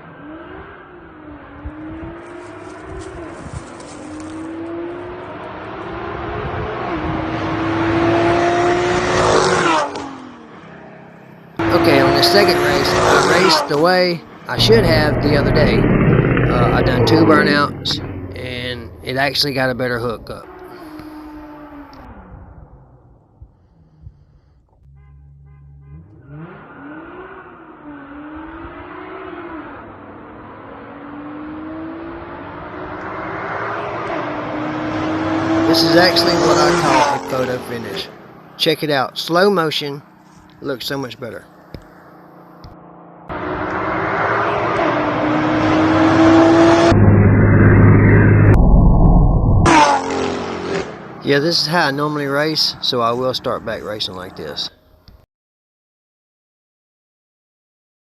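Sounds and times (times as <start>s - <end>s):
car engine at full throttle: 0.0s - 54.7s
road and wind noise: 0.0s - 55.2s.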